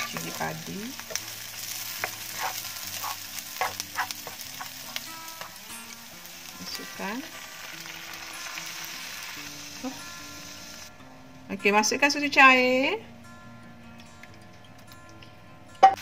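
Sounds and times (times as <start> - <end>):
spatula stirring and scraping: 0.0 - 5.6
onion sizzling in butter: 0.0 - 10.9.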